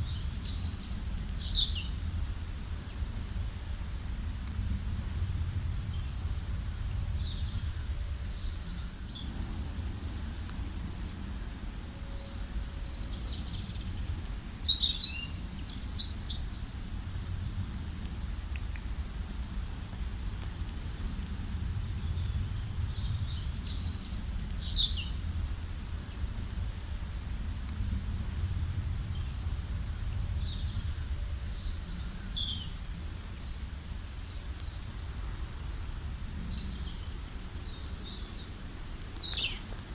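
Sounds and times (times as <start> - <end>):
steady low rumble: 0.0 - 39.9
songbirds chirping and singing: 0.1 - 2.1, 5.9 - 17.0, 29.0 - 34.8.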